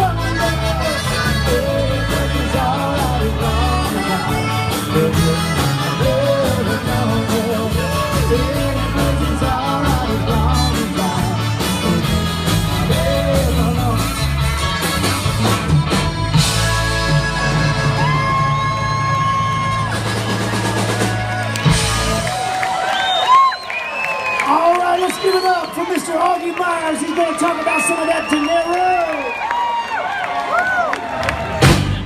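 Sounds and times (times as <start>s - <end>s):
accordion-like melody: 0.0s - 18.6s
live band playing: 0.0s - 29.3s, 31.0s - 32.0s.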